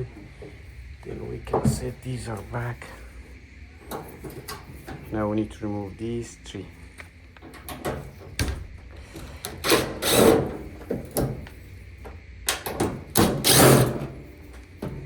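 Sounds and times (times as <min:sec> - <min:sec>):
power drill running: 0:09.0 - 0:10.4.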